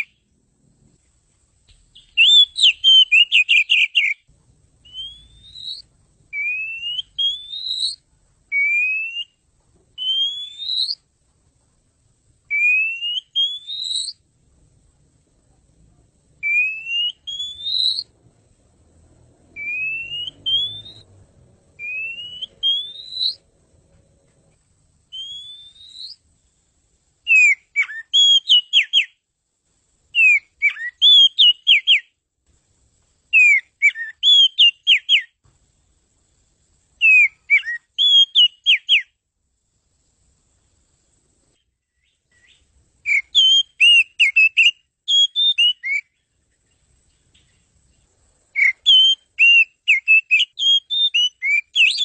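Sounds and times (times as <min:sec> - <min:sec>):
bird singing rising whistles: 0:01.8 - 0:09.4, 0:10.0 - 0:11.1, 0:12.5 - 0:14.2, 0:16.4 - 0:18.2, 0:19.4 - 0:23.5, 0:25.1 - 0:26.3, 0:27.3 - 0:29.2, 0:30.2 - 0:32.2, 0:33.3 - 0:35.4, 0:37.0 - 0:39.2, 0:41.9 - 0:46.3, 0:48.5 - 0:52.0.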